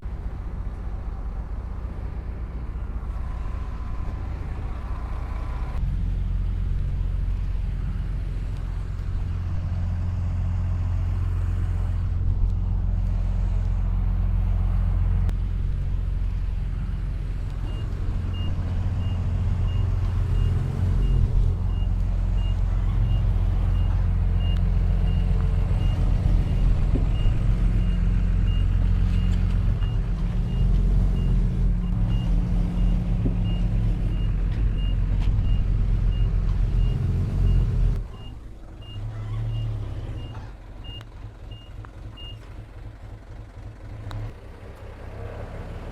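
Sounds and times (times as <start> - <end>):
heavy machinery diesel engine: 0.0 - 45.9.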